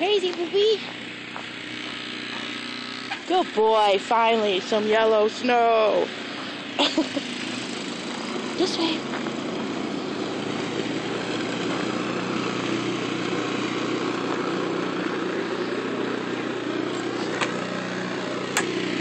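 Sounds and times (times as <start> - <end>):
snowblower engine running: 0.0 - 19.0.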